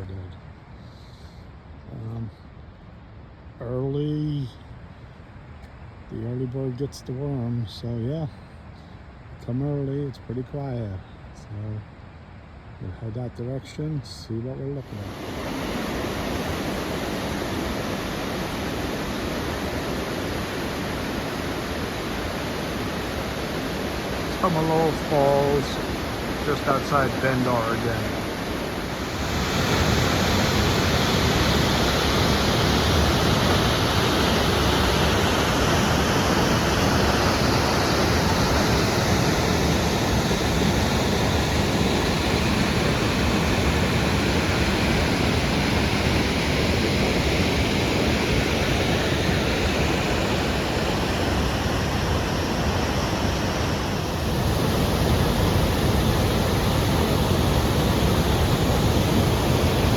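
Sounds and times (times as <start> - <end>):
waterfall rushing: 14.8 - 59.9.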